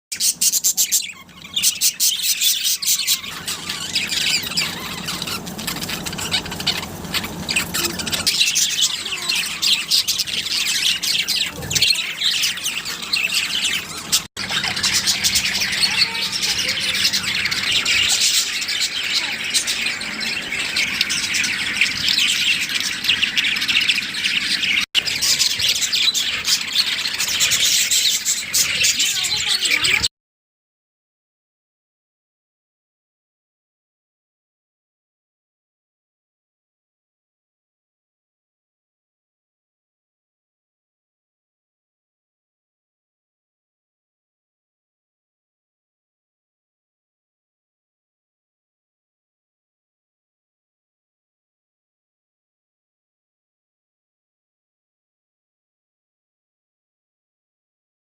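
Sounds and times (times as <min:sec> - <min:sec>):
lovebirds chattering and squawking: 0:00.1 - 0:30.1.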